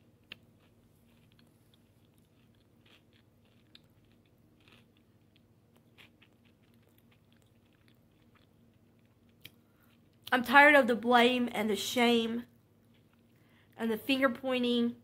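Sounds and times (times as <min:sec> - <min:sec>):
faint chewing: 0:00.0 - 0:10.4, 0:12.8 - 0:13.8
steady low hum: 0:00.0 - 0:15.0.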